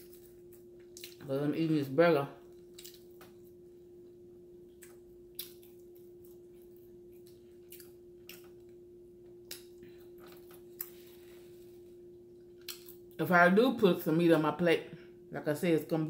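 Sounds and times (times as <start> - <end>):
person chewing quietly: 0.0 - 1.3, 2.4 - 13.2
steady low hum: 0.0 - 16.0
wet mouth clicks and smacks: 2.7 - 3.3, 4.8 - 5.8.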